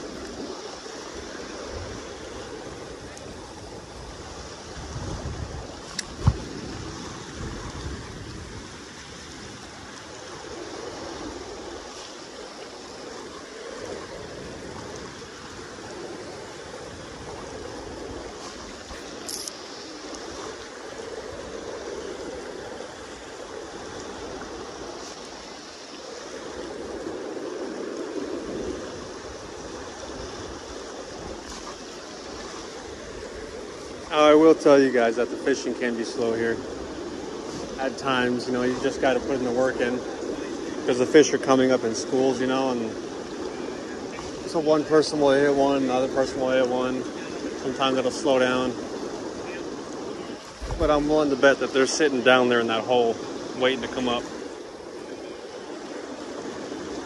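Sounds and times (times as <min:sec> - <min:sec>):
river current rushing: 0:00.0 - 0:57.0.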